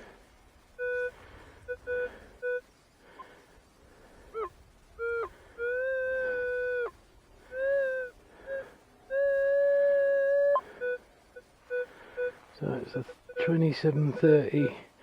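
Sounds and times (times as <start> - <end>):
metal detector beeps: 0.8 - 1.1, 11.7 - 14.8.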